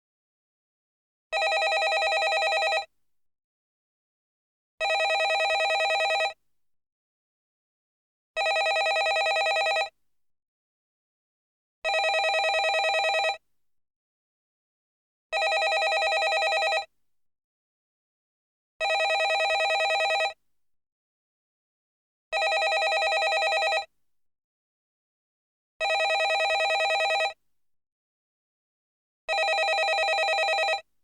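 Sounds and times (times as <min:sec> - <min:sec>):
landline telephone ringing: 0:01.4 - 0:02.9, 0:04.8 - 0:06.4, 0:08.4 - 0:09.9, 0:11.9 - 0:13.4, 0:15.4 - 0:16.9, 0:18.8 - 0:20.4, 0:22.4 - 0:23.9, 0:25.8 - 0:27.4, 0:29.3 - 0:30.8.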